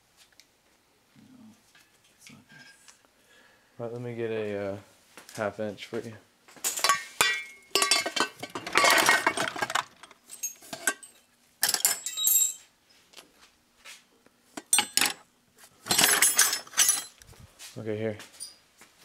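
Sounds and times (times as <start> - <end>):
metal hand tools clinking: 6.7 - 12.6, 14.6 - 15.2, 15.8 - 17.2.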